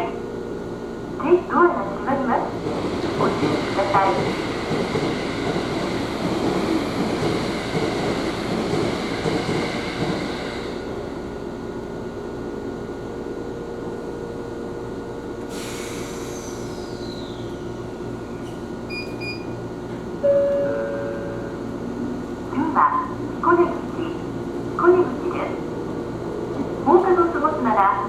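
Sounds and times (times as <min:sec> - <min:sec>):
electric train running noise: 0:00.2 - 0:12.2.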